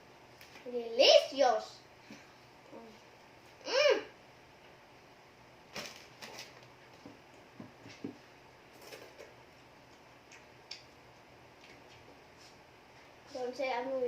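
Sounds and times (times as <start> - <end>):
person chewing food: 8.8 - 12.2.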